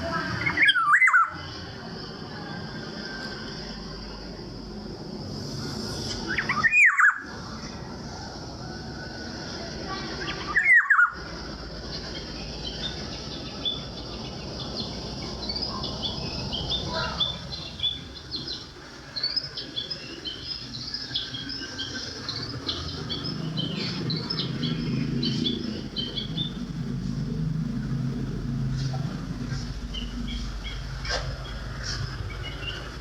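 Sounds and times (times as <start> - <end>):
low engine hum: 11.2 - 33.0
birds chirping: 11.8 - 33.0.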